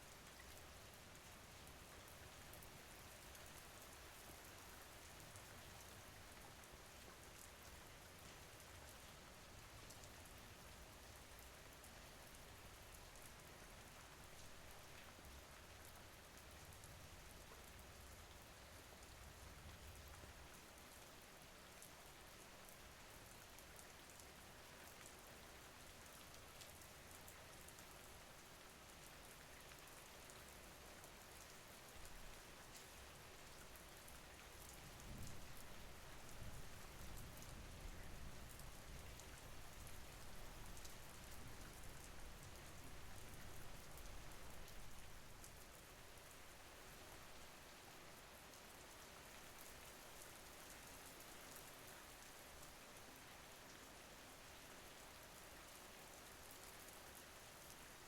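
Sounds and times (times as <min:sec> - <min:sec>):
faint rain patter: 0:00.0 - 0:58.0.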